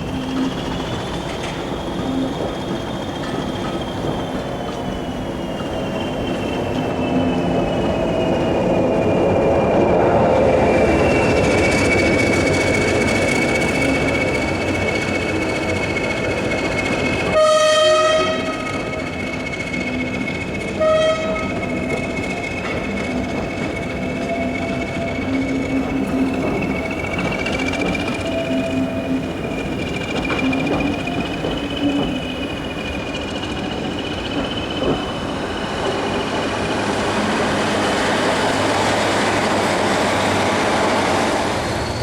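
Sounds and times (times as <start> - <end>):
diesel locomotive passing: 0.0 - 42.0
locomotive horn blast: 17.3 - 19.1, 20.8 - 21.9.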